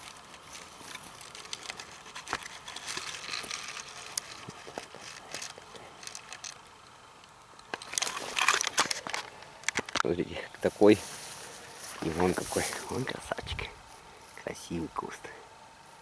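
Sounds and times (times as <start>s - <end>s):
stems clicking and snapping: 0.0s - 10.7s
rustling of grass and leaves: 0.0s - 16.0s.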